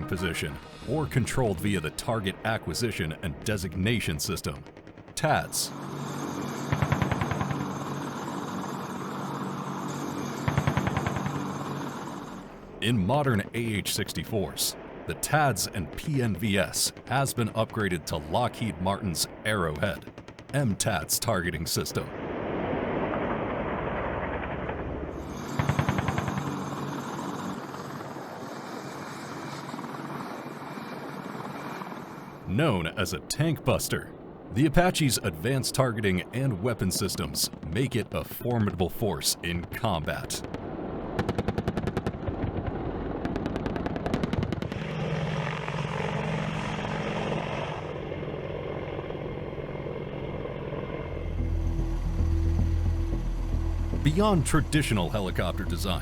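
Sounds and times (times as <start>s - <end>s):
helicopter: 0.1s - 33.0s, 36.3s - 38.8s, 40.2s - 56.0s
rapid cannon fire: 5.8s - 7.9s, 10.4s - 12.0s, 22.1s - 26.8s, 40.4s - 47.6s.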